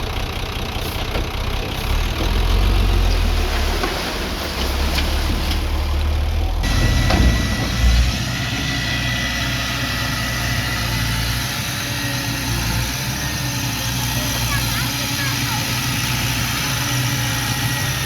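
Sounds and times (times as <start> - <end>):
diesel engine deep rumble: 0.0 - 18.0
heavy thumps: 6.6 - 8.3.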